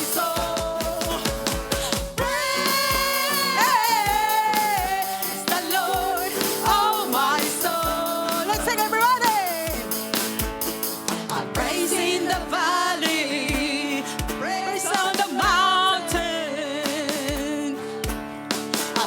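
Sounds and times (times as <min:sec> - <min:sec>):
kick drum beat: 0:00.0 - 0:10.9, 0:11.6 - 0:12.7, 0:13.5 - 0:14.6, 0:15.4 - 0:16.4, 0:17.2 - 0:18.4
person singing with vibrato: 0:00.0 - 0:18.2
live worship band: 0:00.0 - 0:19.0.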